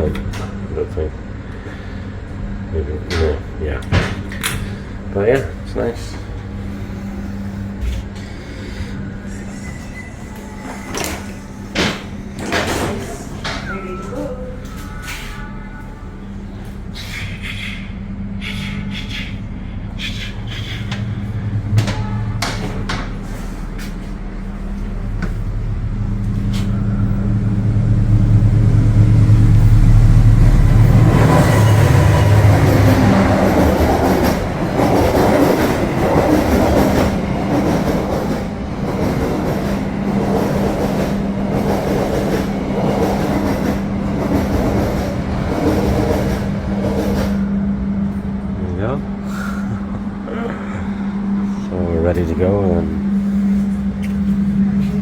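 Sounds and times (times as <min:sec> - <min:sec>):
diesel locomotive engine drone: 0:00.0 - 0:55.0
train carriages rattling past: 0:20.4 - 0:55.0.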